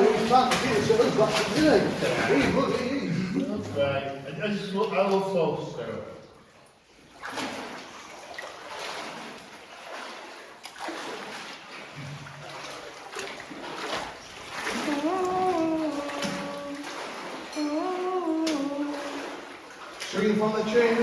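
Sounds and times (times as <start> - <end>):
water splashing from wading: 0.0 - 21.0
person humming: 14.7 - 19.5.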